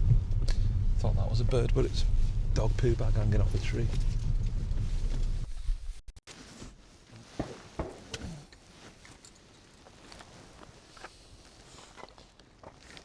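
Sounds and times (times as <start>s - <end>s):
car rumbling over rough track: 0.0s - 5.9s.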